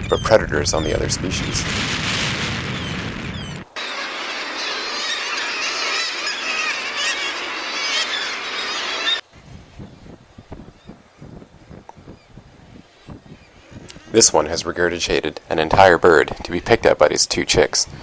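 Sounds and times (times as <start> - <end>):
low wind rumble: 0.0 - 18.0
seabird colony calling: 3.8 - 9.2.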